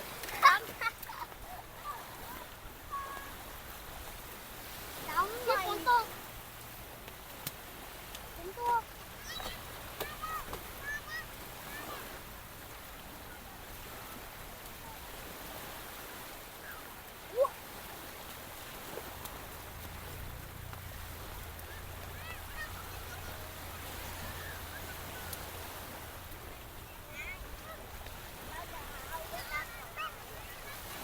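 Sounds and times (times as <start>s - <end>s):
sea surf on a beach: 0.0s - 31.0s
faint distant voices: 7.8s - 31.0s.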